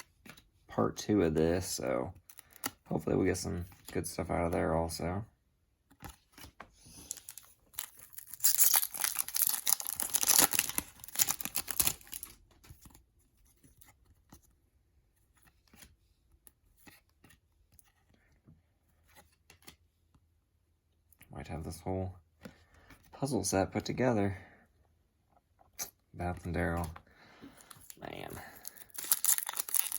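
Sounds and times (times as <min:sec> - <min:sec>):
foil pack tearing and crinkling: 0:07.1 - 0:12.4, 0:28.6 - 0:29.9.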